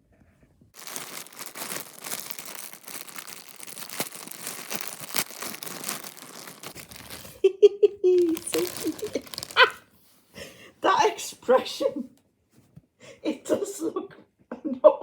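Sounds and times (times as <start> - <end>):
packaging crinkling: 0.8 - 7.4, 8.2 - 9.9.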